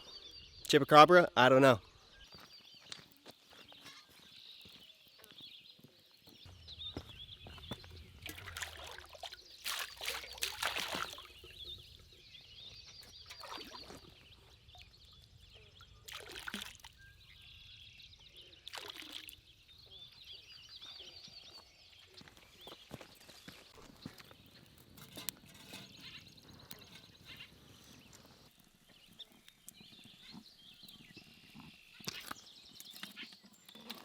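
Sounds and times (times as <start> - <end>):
birds chirping and trilling: 0.0 - 34.0
water pouring: 8.2 - 11.7, 16.0 - 17.0, 18.7 - 19.4.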